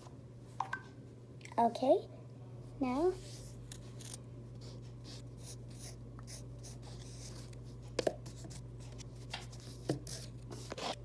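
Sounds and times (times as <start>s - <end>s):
pencil scratching on paper: 3.2s - 7.6s.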